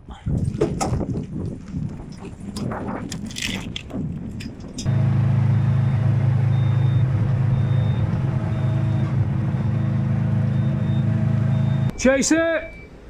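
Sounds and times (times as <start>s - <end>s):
truck engine running: 3.8s - 12.0s
reversing beeps: 4.9s - 13.0s.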